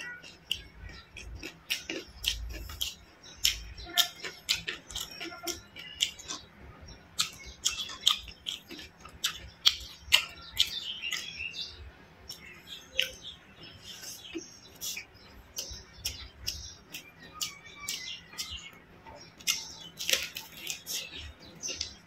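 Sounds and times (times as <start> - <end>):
chewing crunchy fried chicken: 0.0 - 22.0
mouth clicks and lip smacks: 13.9 - 22.0.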